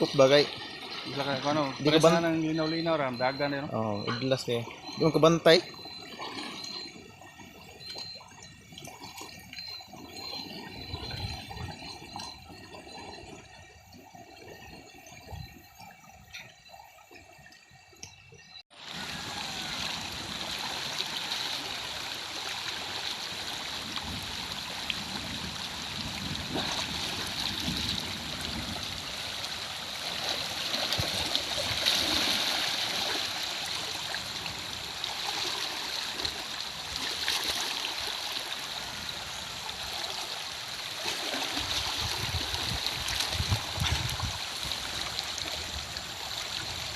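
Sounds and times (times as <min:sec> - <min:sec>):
river current rushing: 0:00.0 - 0:13.5, 0:25.6 - 0:46.9
water sloshing and splashing: 0:00.0 - 0:46.9.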